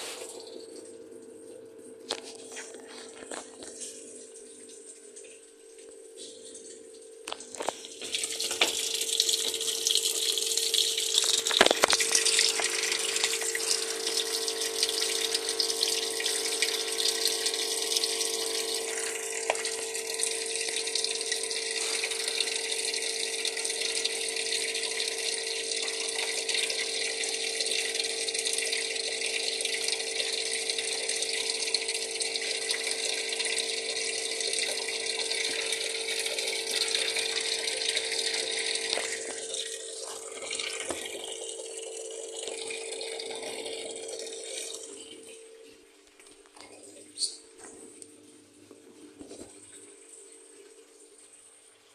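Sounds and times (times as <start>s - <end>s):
water gushing into washing machine: 0.0s - 1.2s, 2.1s - 45.8s, 46.6s - 51.9s
constant hum: 0.0s - 20.8s.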